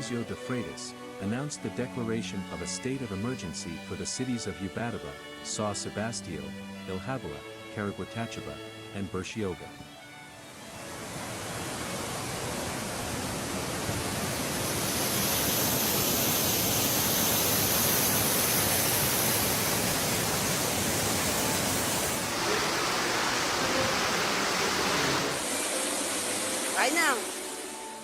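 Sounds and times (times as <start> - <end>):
water rushing: 10.0 - 28.0.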